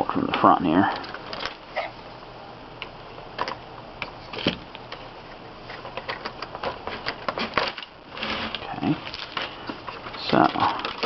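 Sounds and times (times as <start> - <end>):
packaging clicks and crackles: 5.9 - 11.0.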